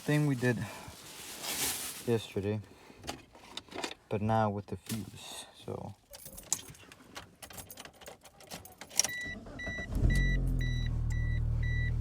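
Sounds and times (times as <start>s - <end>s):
keys jangling in ignition: 6.0s - 9.2s
car engine starting and idling: 9.0s - 12.0s
car warning chime beeping: 9.1s - 12.0s.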